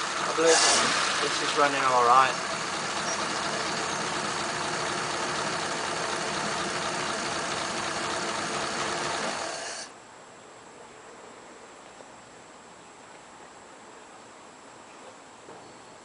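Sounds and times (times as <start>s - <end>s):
pickup engine idling: 0.0s - 9.9s.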